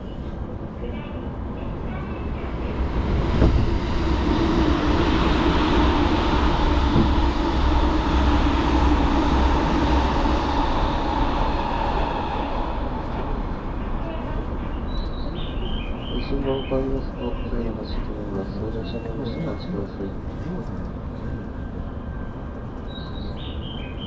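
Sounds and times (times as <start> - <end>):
electric train rumbling: 0.0 - 24.0
train motor hum: 2.7 - 13.4.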